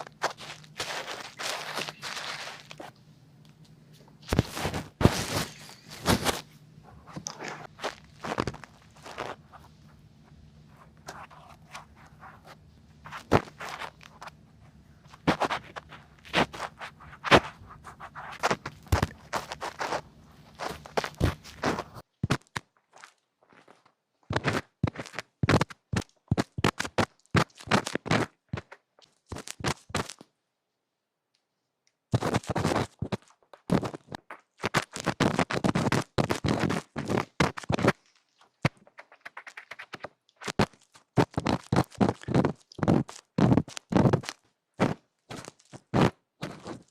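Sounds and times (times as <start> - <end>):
scratchy rubbing on microphone: 0.0 - 2.9, 4.3 - 22.0, 32.1 - 38.0, 38.6 - 46.9.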